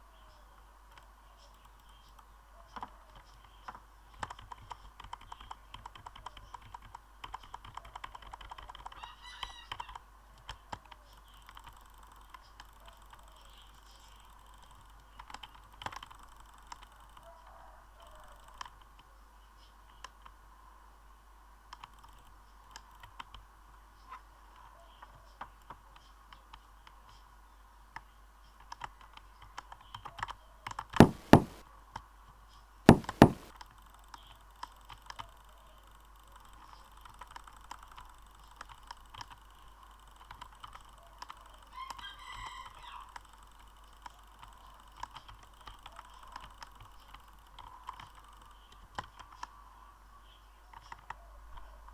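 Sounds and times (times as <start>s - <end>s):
loud double clicks: 32.9s - 33.6s.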